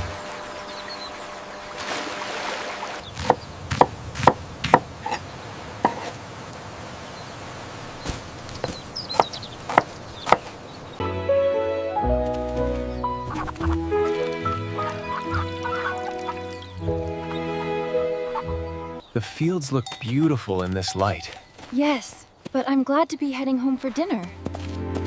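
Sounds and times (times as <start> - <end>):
music: 11.0 - 19.0, 24.4 - 25.0.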